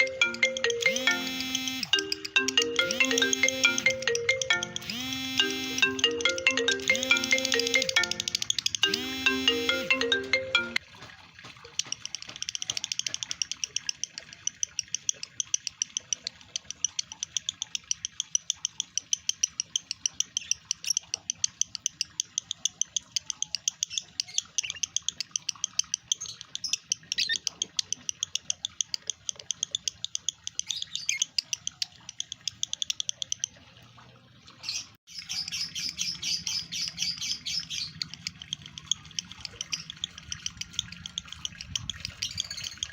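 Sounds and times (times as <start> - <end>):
chiming ringtone tune: 0.0 - 10.8
lovebird chattering chirps: 6.8 - 9.7, 12.6 - 33.5, 34.7 - 42.9.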